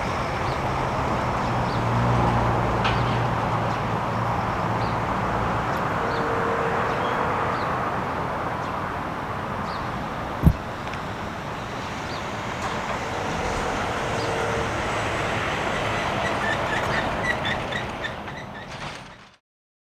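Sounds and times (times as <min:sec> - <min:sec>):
train wheels rumbling on rails: 0:00.0 - 0:19.4
wheel squeals and clicks: 0:12.1 - 0:19.4.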